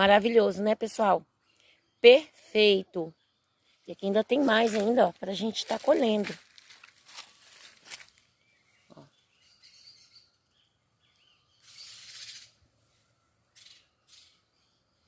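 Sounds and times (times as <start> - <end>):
birds chirping: 0.0 - 15.0
rustling: 4.3 - 8.2.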